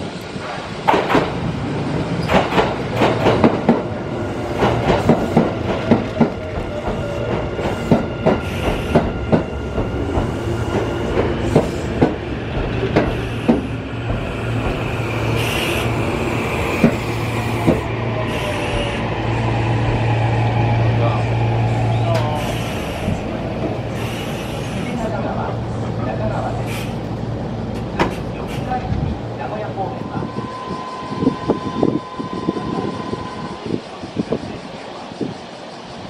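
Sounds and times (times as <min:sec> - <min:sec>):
train wheels clicking over rail joints: 0:00.4 - 0:01.4, 0:02.2 - 0:03.9, 0:04.5 - 0:19.0, 0:26.7 - 0:29.1.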